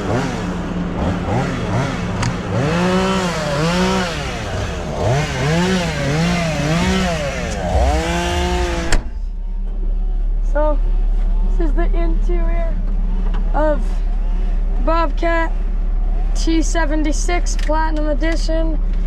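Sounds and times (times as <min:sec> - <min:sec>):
chainsaw revving: 0:00.0 - 0:09.0.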